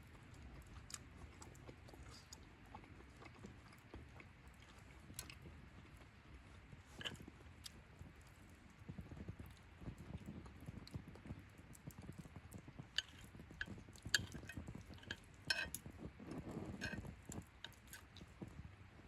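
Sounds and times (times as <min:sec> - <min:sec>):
metal utensils clinking on cookware: 0:14.2 - 0:15.8, 0:16.8 - 0:17.1.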